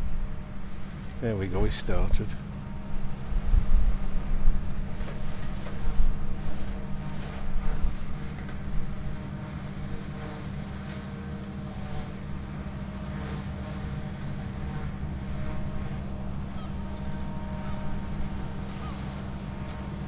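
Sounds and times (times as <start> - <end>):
tractor and harvester running: 0.0 - 20.0
wind gusts on microphone: 3.0 - 9.1.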